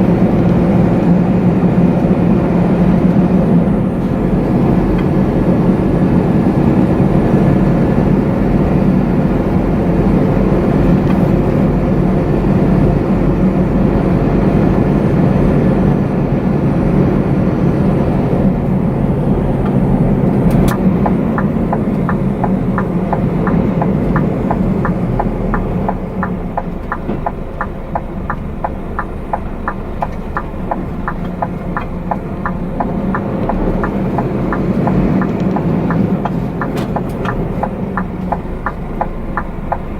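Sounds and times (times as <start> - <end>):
truck engine and road rumble: 0.0 - 39.9
steady ticking: 18.6 - 39.9.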